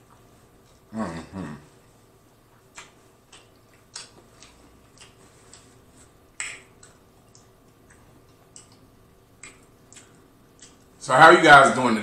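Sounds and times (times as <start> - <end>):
wet chewing and lip smacks: 2.4 - 11.0.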